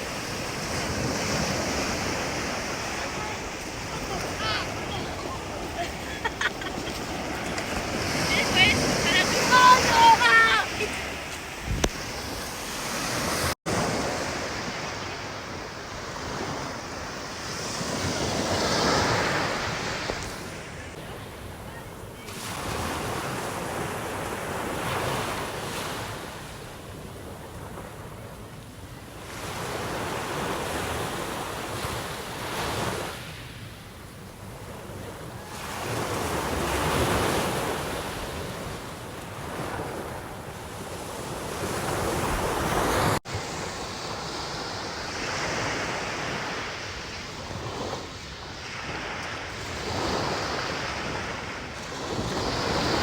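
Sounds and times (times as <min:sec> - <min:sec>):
wind on microphone: 0:00.0 - 0:14.5
sea waves breaking: 0:00.0 - 0:53.0.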